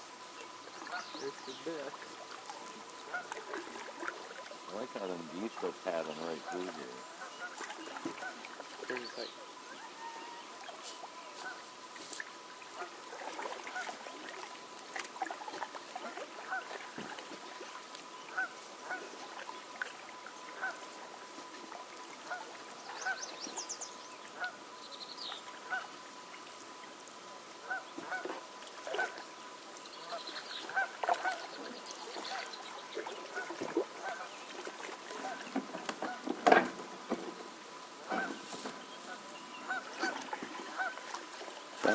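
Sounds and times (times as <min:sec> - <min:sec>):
faint steady whine: 0:00.0 - 0:41.9
songbirds trilling faintly: 0:00.0 - 0:41.9
geese honking: 0:00.8 - 0:01.8, 0:03.0 - 0:03.8, 0:04.7 - 0:11.7, 0:16.0 - 0:17.0, 0:18.3 - 0:19.2, 0:20.5 - 0:21.1, 0:22.2 - 0:23.4, 0:24.4 - 0:24.6, 0:25.6 - 0:26.0, 0:27.6 - 0:29.3, 0:30.0 - 0:32.5, 0:38.0 - 0:41.2.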